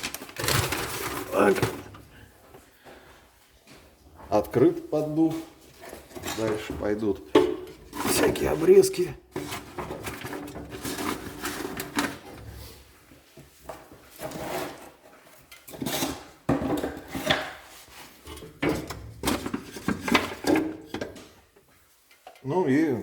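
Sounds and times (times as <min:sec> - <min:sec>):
wood clattering into stove: 0:05.8 - 0:08.6, 0:15.5 - 0:21.5.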